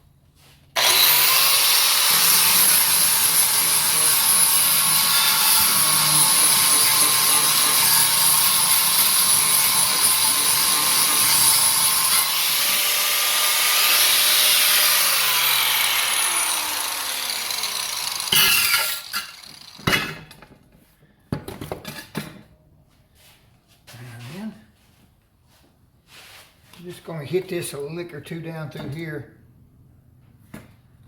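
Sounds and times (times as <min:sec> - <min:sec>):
electric grinder whining: 0:00.8 - 0:19.9.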